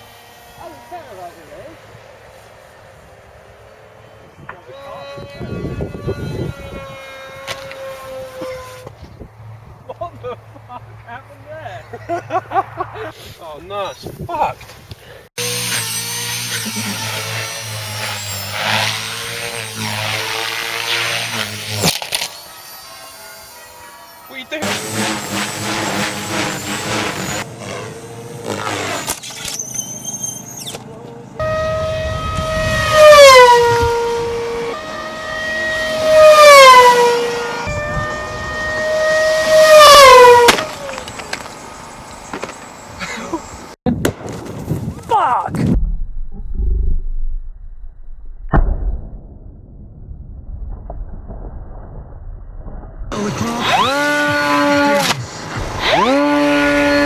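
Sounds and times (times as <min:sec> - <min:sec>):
small motor buzzing: 0:00.0 - 0:03.1, 0:04.9 - 0:09.1, 0:15.4 - 0:30.8, 0:31.4 - 0:42.7, 0:53.1 - 0:57.0
model aircraft propeller whining: 0:00.0 - 0:09.0, 0:15.4 - 0:43.8, 0:53.1 - 0:57.0
sharp crack: 0:39.5 - 0:42.7, 0:48.4 - 0:56.5.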